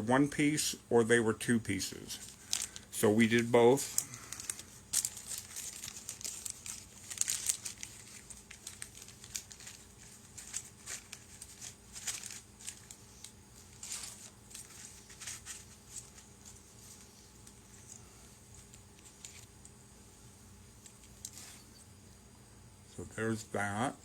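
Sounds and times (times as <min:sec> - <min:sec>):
packaging crinkling: 0:02.2 - 0:19.7.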